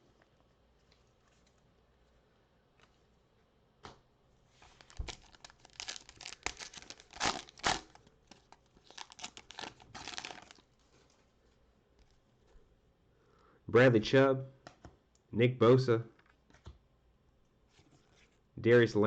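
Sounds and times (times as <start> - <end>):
card pack wrapper tearing: 4.7 - 10.7.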